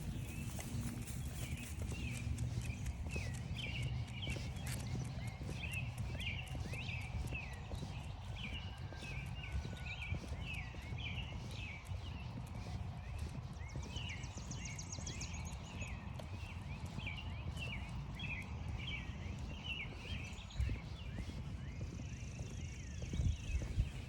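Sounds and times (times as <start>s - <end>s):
footsteps crunching frosty grass: 0.0s - 2.7s
songbirds chirping: 0.0s - 24.0s.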